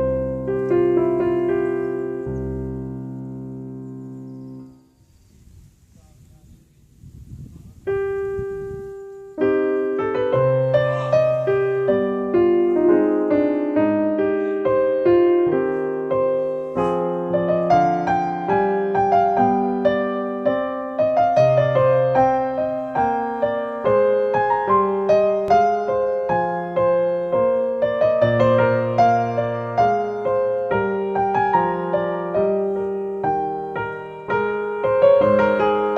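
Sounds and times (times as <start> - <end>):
piano music: 0.0 - 4.9, 7.8 - 35.9.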